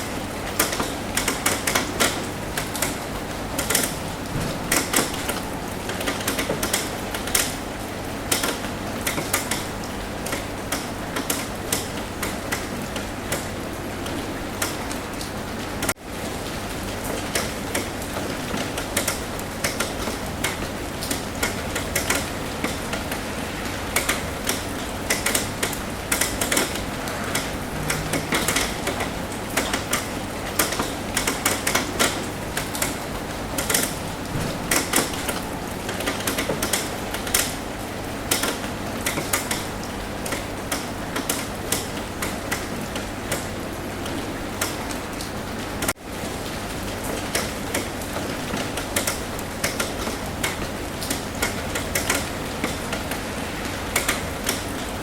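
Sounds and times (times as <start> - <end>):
raindrops tapping on a roof: 0.0 - 55.0
steady rain hiss: 0.0 - 55.0.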